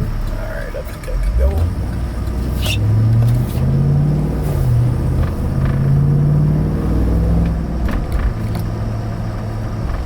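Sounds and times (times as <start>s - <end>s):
car engine from inside cab: 0.0s - 10.0s.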